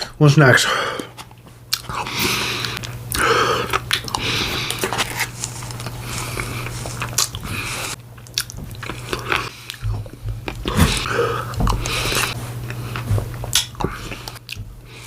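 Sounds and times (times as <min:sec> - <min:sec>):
steady low hum: 0:00.0 - 0:15.0
person eating ice cream: 0:01.0 - 0:15.0.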